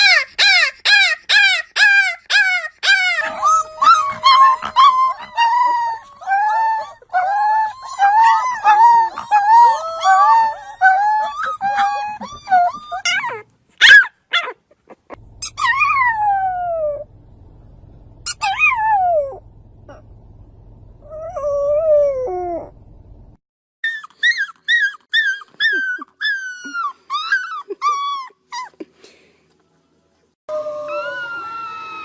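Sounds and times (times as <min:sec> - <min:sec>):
puppies howling: 0:00.0 - 0:17.1, 0:18.3 - 0:20.0, 0:30.5 - 0:32.0.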